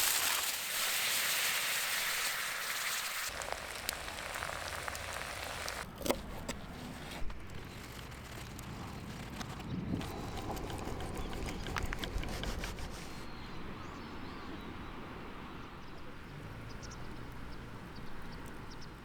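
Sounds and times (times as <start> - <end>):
campfire crackling and popping: 0.0 - 6.3.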